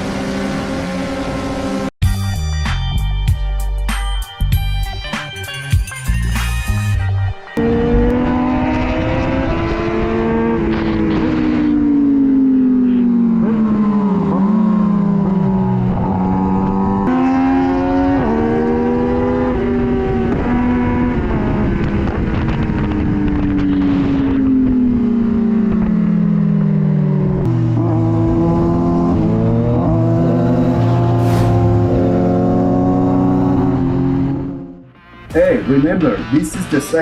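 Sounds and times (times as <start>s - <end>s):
motorcycle engine: 0.0s - 2.0s, 7.6s - 35.0s.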